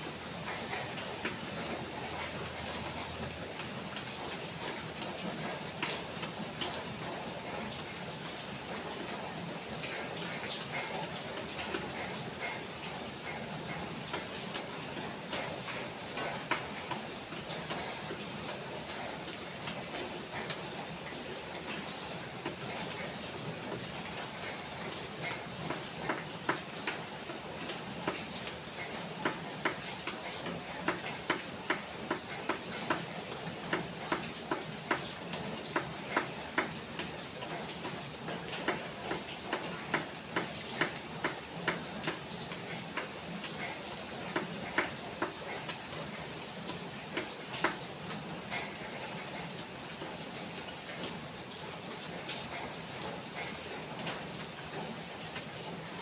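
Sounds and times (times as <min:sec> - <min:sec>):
rain falling: 0:00.0 - 0:56.0
drips ticking: 0:21.6 - 0:51.1
drops ticking on hard surface: 0:29.2 - 0:33.1, 0:33.7 - 0:37.1.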